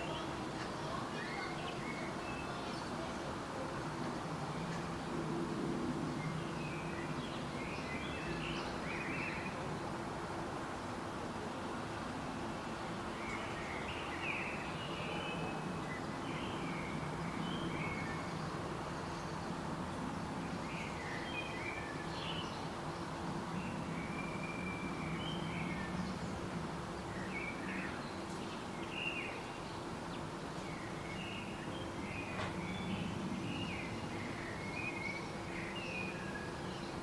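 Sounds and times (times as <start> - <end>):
birds chirping: 0.0 - 5.0, 13.1 - 37.0.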